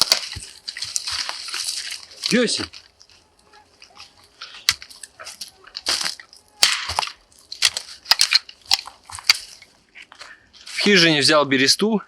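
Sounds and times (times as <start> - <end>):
dry sticks crunching and snapping: 0.0 - 11.1.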